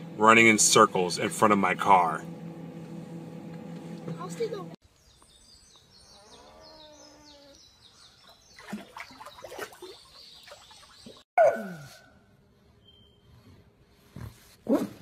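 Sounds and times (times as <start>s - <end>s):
beaver splashing in water: 8.6s - 11.2s.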